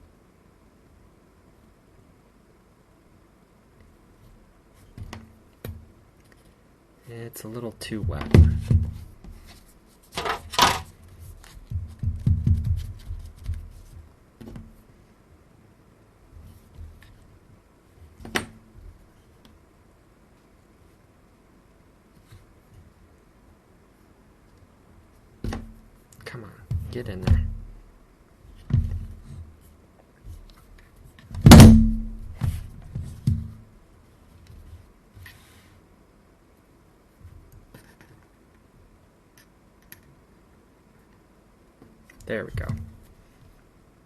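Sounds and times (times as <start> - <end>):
rustling: 4.1 - 15.1
hard objects knocking on workbench: 8.1 - 9.4, 11.7 - 12.9.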